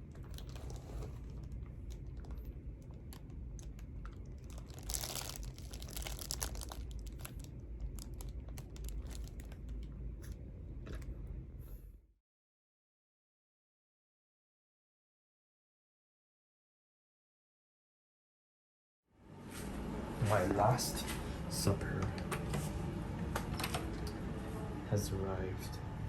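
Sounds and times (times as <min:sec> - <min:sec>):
small clicks and crinkling: 0:00.0 - 0:11.2
steady low hum: 0:00.0 - 0:12.1.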